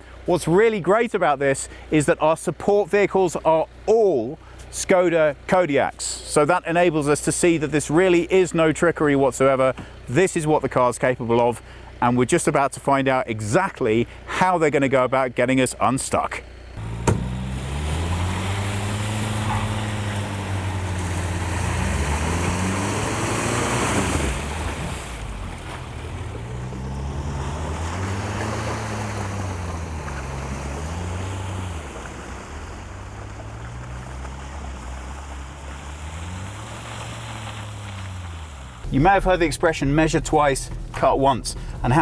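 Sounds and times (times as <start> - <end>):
car engines revving: 16.5 - 42.0.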